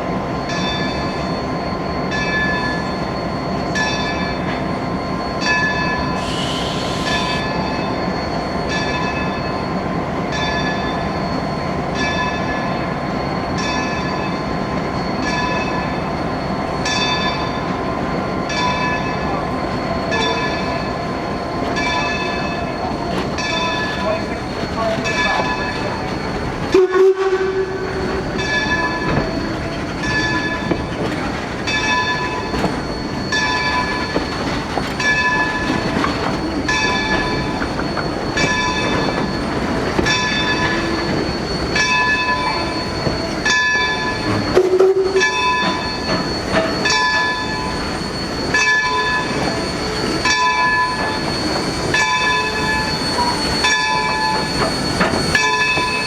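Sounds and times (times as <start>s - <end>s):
locomotive bell ringing: 0.0s - 56.0s
moving train rumble: 0.0s - 56.0s
low steam whistle: 4.8s - 8.5s, 25.5s - 30.8s, 36.7s - 56.0s.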